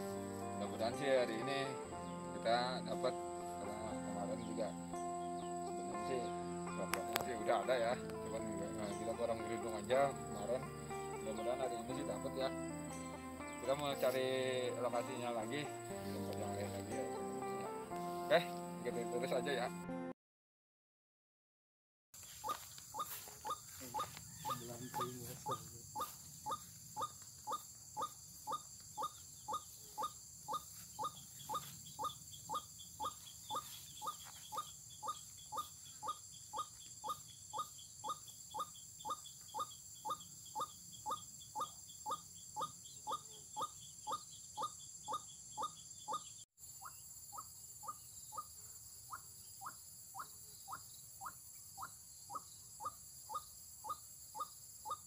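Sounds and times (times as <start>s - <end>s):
waterhen calling: 22.2s - 46.2s.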